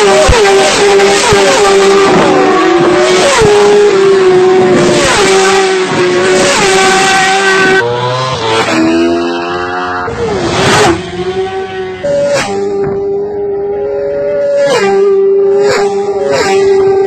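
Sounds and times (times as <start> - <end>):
lower engine note: 0.0 - 17.0
vehicle engine at high revs: 0.0 - 17.0.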